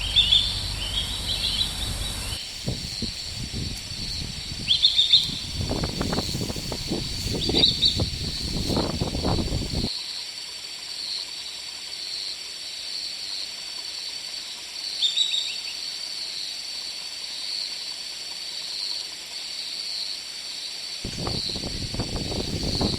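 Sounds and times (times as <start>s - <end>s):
bird chirps: 0.0s - 9.9s
low rumbling noise: 0.0s - 9.9s
insect drone: 0.0s - 22.9s.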